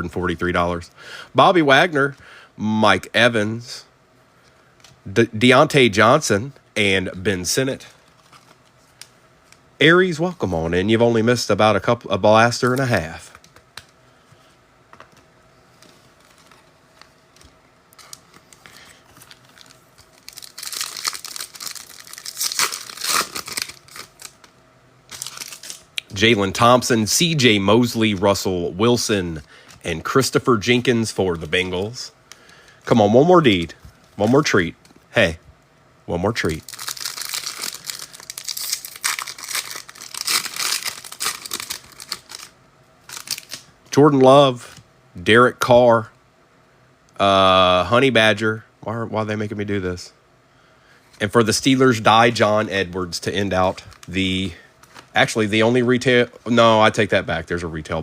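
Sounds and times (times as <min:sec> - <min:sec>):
wrapper tearing and crinkling: 0:17.4 - 0:24.5, 0:25.1 - 0:26.1, 0:36.4 - 0:43.7, 0:53.7 - 0:54.2.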